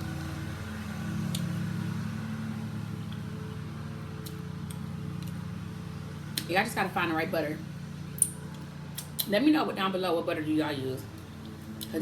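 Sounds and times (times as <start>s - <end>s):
lawn mower engine running: 0.0s - 9.0s.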